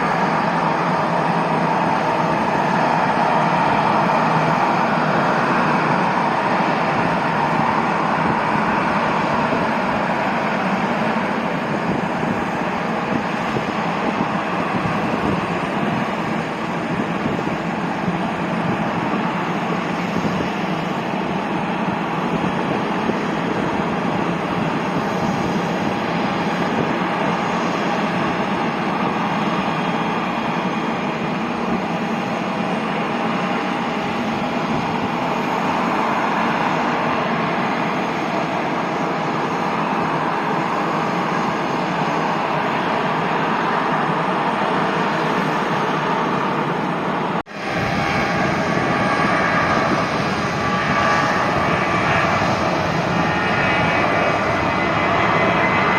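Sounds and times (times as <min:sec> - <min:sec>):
jet engines running: 0:00.0 - 0:55.9.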